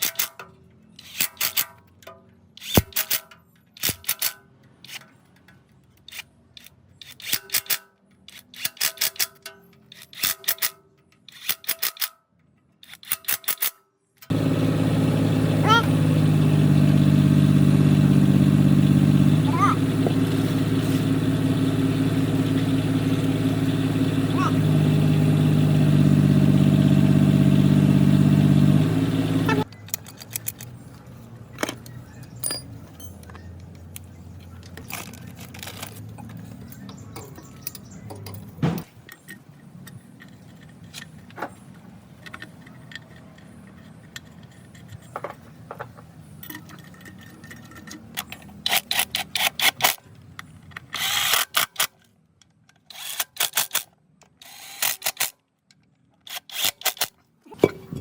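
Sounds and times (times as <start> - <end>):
diesel engine running: 14.3 - 29.8.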